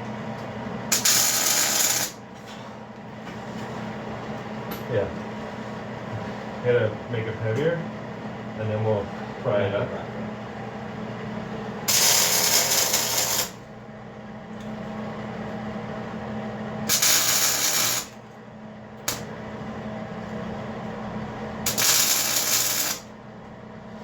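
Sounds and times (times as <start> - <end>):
low electrical hum: 0.0 - 24.0
arc welder buzzing: 0.8 - 2.4, 11.8 - 13.8, 16.7 - 18.4, 19.0 - 19.6, 21.5 - 23.2.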